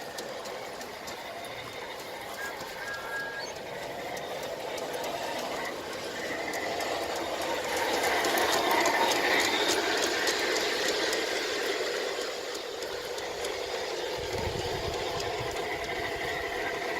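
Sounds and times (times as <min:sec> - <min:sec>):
model train motor whirring: 0:00.0 - 0:16.9
small clicks on track: 0:00.0 - 0:16.9.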